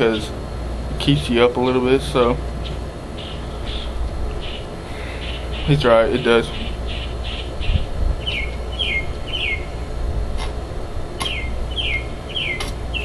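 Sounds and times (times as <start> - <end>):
steady low hum: 0.0 - 13.0
bird chirping: 2.6 - 9.8, 11.2 - 13.0
sharp clicks: 11.2 - 11.4, 12.6 - 12.8.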